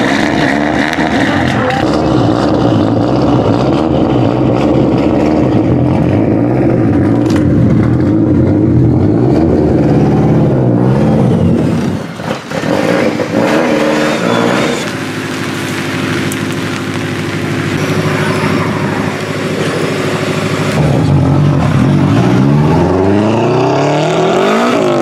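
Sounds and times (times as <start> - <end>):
car engine lumpy idle with blips: 14.0 - 22.4.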